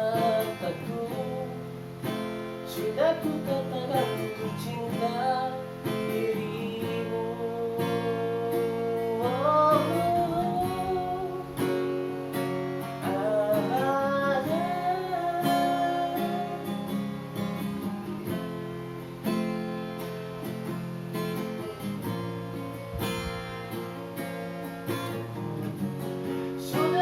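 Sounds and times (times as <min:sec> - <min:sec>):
wordless sung vocal: 0:00.0 - 0:17.6, 0:25.1 - 0:27.0
acoustic guitar strumming: 0:00.0 - 0:27.0.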